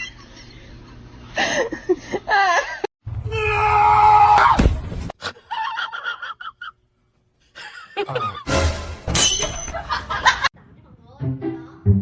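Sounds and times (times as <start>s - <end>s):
person screaming: 3.2s - 4.6s
person laughing: 7.6s - 8.5s.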